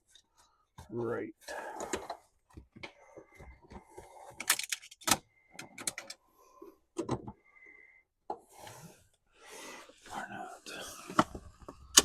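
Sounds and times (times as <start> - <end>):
parts clicking and knocking: 1.7 - 6.2.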